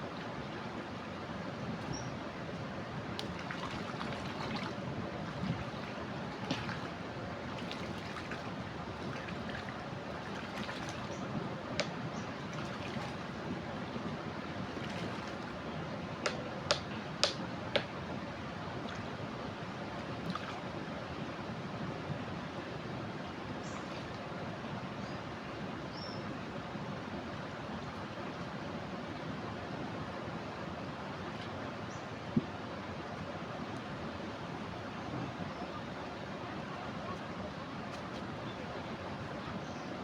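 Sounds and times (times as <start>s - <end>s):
water rushing over a weir: 0.0s - 21.4s.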